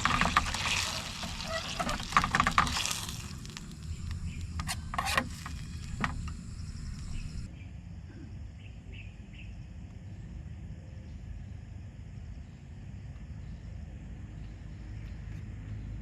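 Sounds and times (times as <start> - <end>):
insect trilling: 0.0 - 7.5
sharp clicks and knocks: 0.0 - 7.5
low outdoor rumble: 0.0 - 16.0.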